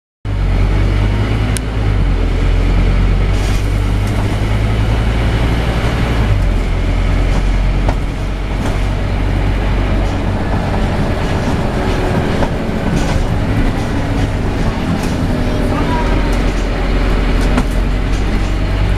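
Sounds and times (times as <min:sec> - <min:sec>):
bus engine drone: 0:00.3 - 0:18.9.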